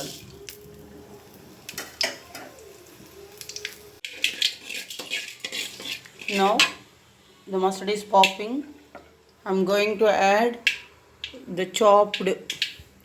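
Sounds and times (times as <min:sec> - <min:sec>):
faint sizzle: 0:00.0 - 0:13.0.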